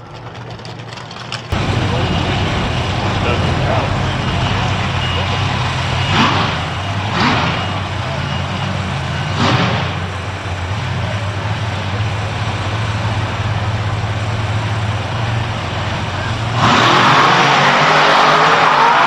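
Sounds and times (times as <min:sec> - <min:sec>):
truck engine rumbling: 0:00.0 - 0:19.0
loud engine burst: 0:01.5 - 0:11.4, 0:15.2 - 0:19.0.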